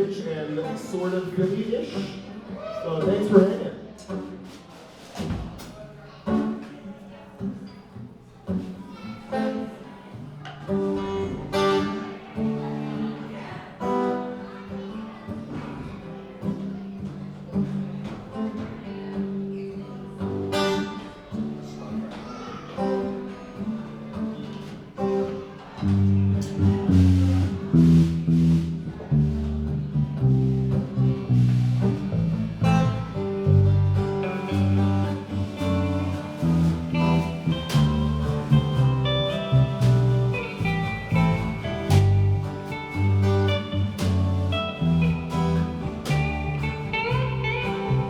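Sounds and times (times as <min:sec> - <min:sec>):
acoustic guitar picked and strummed: 0:00.0 - 0:48.0
low bass notes: 0:25.8 - 0:48.0.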